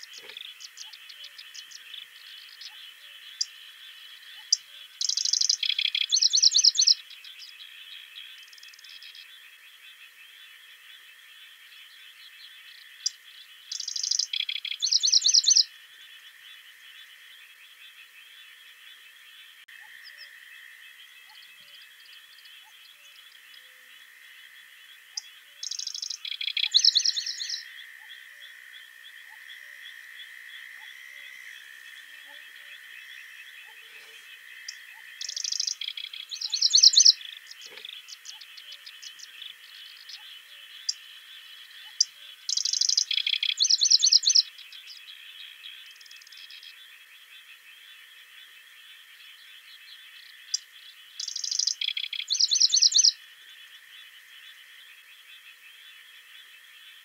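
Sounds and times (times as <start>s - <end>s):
songbird singing trills: 0.0s - 10.5s, 11.7s - 16.6s, 24.9s - 47.9s, 49.2s - 53.2s.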